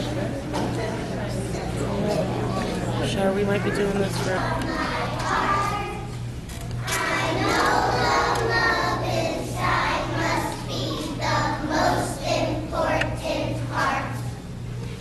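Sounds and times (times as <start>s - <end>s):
children singing: 4.5s - 6.1s, 6.8s - 14.2s.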